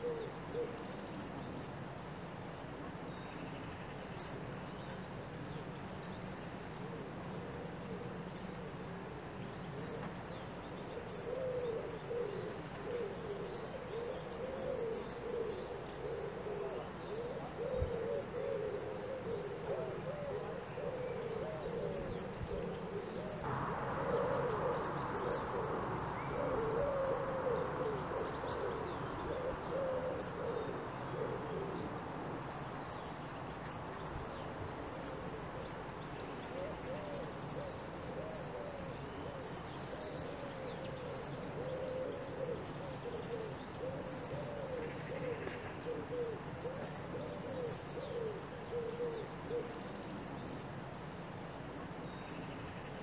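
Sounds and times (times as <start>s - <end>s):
low wavering cooing calls: 0.0s - 1.1s, 6.7s - 50.1s
steady hiss: 23.4s - 38.5s.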